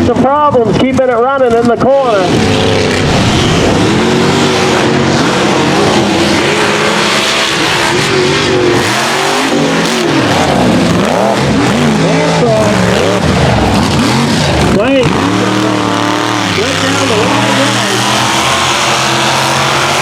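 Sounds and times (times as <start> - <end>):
truck engines revving: 0.0 - 20.0.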